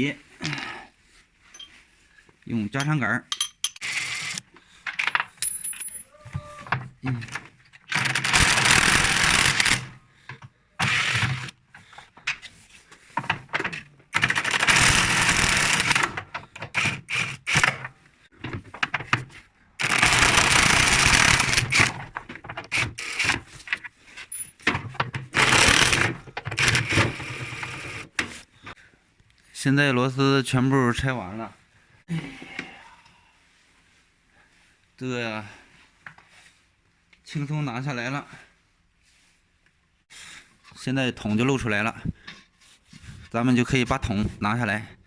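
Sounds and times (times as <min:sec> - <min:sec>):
metallic clinks of screws: 0:01.5 - 0:01.8, 0:02.8 - 0:03.8, 0:04.9 - 0:06.1
electric impact wrench bursts: 0:07.9 - 0:10.0, 0:10.8 - 0:11.5, 0:14.2 - 0:16.2, 0:16.8 - 0:17.9, 0:19.8 - 0:22.0, 0:22.7 - 0:23.4, 0:25.4 - 0:28.1.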